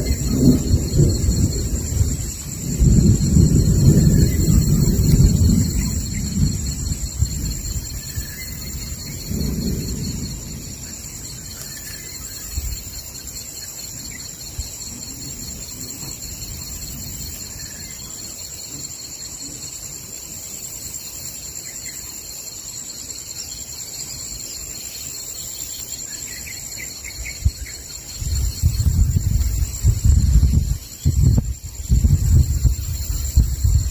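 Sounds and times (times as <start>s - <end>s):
thunder rumble: 0.0s - 19.2s, 27.0s - 33.9s
insect chorus drone: 0.0s - 33.9s.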